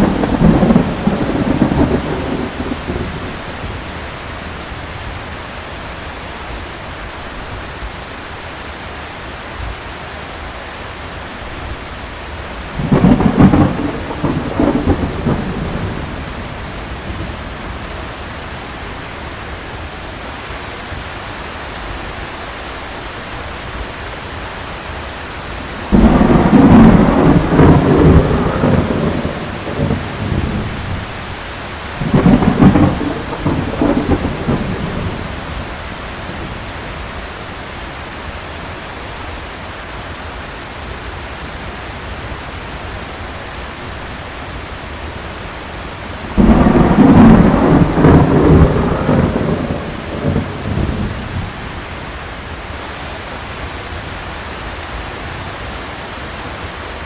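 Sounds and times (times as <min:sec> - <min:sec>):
loud thunderclap: 0:00.0 - 0:03.8, 0:12.7 - 0:17.9, 0:25.8 - 0:31.2, 0:31.9 - 0:36.7, 0:46.2 - 0:51.6
rolling thunder: 0:00.0 - 0:04.3, 0:12.7 - 0:18.5, 0:25.6 - 0:37.2, 0:46.0 - 0:51.8
heavy rain falling: 0:00.0 - 0:57.0.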